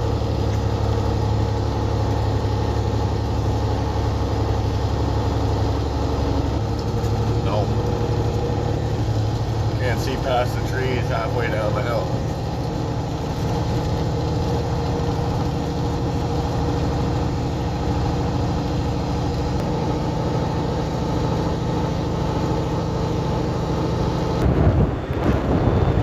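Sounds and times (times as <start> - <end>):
truck diesel engine running: 0.0 - 26.0
rush of wind noise: 24.3 - 26.0.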